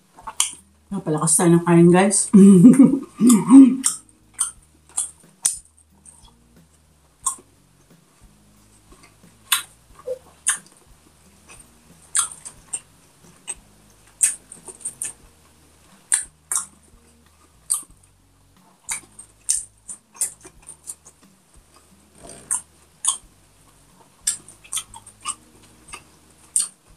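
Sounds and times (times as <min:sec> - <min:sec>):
wet chewing and crunching: 0:00.2 - 0:00.6, 0:03.8 - 0:06.4, 0:08.8 - 0:10.8, 0:11.4 - 0:15.2, 0:16.1 - 0:18.0, 0:18.7 - 0:23.3, 0:24.2 - 0:26.8.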